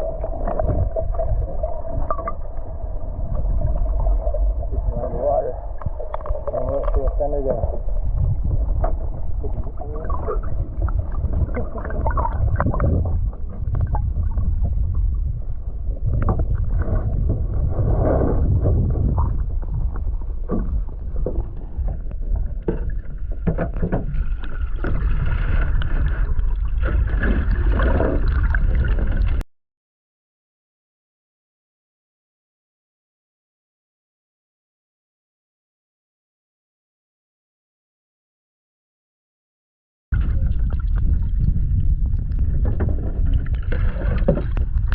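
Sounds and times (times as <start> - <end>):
low rumble on microphone: 0.0 - 29.4, 40.1 - 44.9
water sloshing and splashing: 0.0 - 29.4, 40.2 - 44.9.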